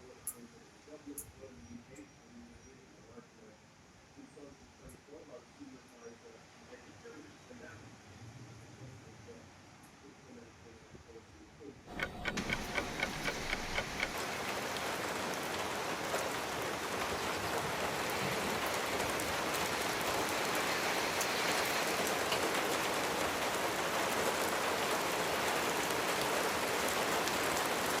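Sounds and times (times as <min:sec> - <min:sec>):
regular ticks: 0:11.9 - 0:14.2
raindrops clicking: 0:11.9 - 0:14.3
heavy rain hissing: 0:11.9 - 0:28.0.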